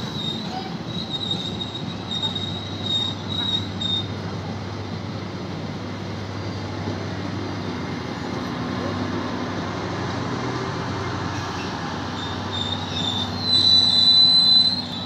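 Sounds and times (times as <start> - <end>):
train wheels rumbling on rails: 0.0 - 15.0
high thin squeal: 12.2 - 15.0.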